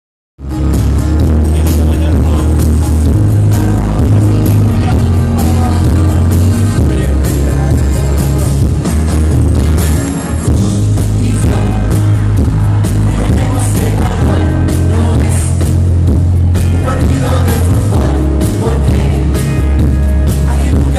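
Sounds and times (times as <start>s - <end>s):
bass line: 0.4s - 20.9s
drum beats: 0.4s - 20.9s
live band playing loudly: 0.4s - 20.9s
person singing: 3.5s - 8.6s, 10.8s - 20.9s.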